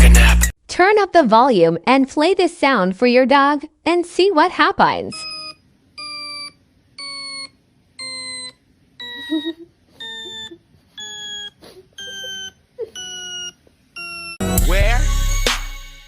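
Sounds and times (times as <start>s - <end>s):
descending electronic beeps: 5.1s - 14.4s.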